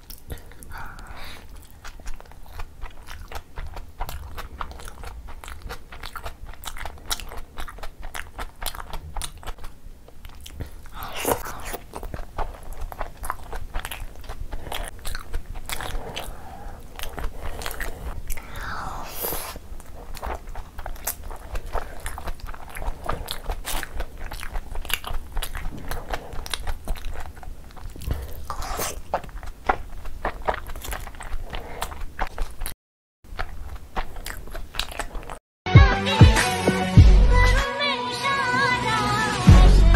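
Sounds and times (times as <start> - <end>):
wet chewing and lip smacking: 0.0 - 35.4
slurp: 10.9 - 12.2, 15.7 - 22.1, 27.9 - 29.2.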